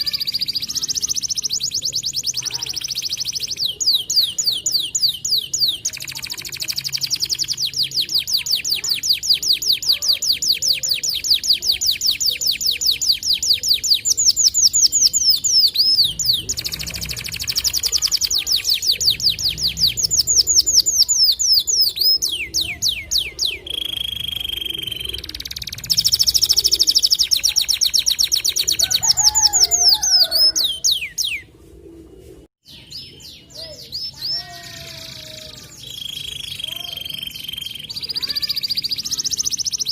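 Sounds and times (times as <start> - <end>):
canary singing trills: 0.0 - 31.5, 32.6 - 39.9.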